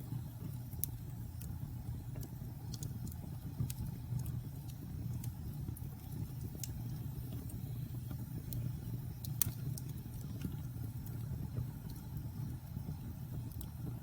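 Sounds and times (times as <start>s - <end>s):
fire crackling and popping: 0.0s - 14.0s
low rumble of flames: 0.0s - 14.0s.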